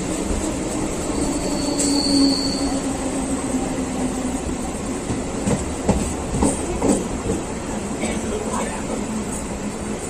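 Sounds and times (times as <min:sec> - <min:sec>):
train running along track: 0:00.0 - 0:10.0
high-pitched wheel squeal: 0:01.1 - 0:02.8.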